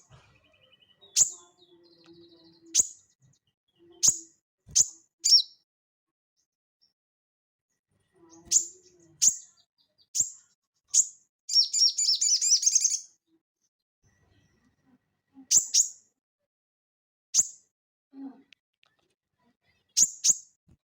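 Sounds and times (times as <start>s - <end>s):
spiderhunter bird chirping: 4.8s - 5.5s, 10.9s - 13.0s.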